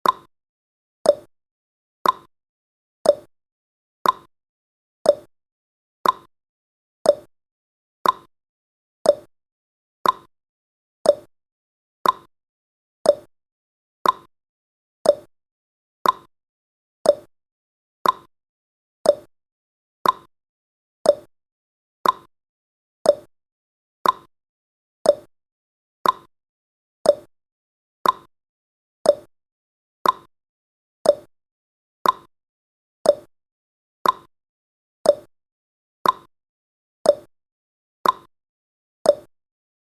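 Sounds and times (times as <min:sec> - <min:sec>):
clock-like ticks: 0:00.0 - 0:00.3, 0:01.1 - 0:01.3, 0:02.0 - 0:02.3, 0:03.0 - 0:03.3, 0:04.0 - 0:04.3, 0:05.1 - 0:05.3, 0:06.0 - 0:06.3, 0:07.1 - 0:07.3, 0:08.0 - 0:08.3, 0:09.0 - 0:09.3, 0:10.0 - 0:10.3, 0:11.0 - 0:11.3, 0:12.0 - 0:12.3, 0:13.0 - 0:13.3, 0:14.0 - 0:14.3, 0:15.0 - 0:15.3, 0:16.0 - 0:16.3, 0:17.0 - 0:17.3, 0:18.0 - 0:18.3, 0:19.0 - 0:19.3, 0:20.0 - 0:20.3, 0:21.0 - 0:21.3, 0:22.0 - 0:22.3, 0:23.0 - 0:23.3, 0:24.0 - 0:24.3, 0:25.0 - 0:25.3, 0:26.0 - 0:26.3, 0:27.0 - 0:27.3, 0:28.0 - 0:28.3, 0:29.0 - 0:29.3, 0:30.0 - 0:30.3, 0:31.0 - 0:31.3, 0:32.0 - 0:32.3, 0:33.0 - 0:33.3, 0:34.0 - 0:34.3, 0:35.0 - 0:35.3, 0:36.0 - 0:36.3, 0:37.0 - 0:37.3, 0:38.0 - 0:38.3, 0:39.1 - 0:39.3.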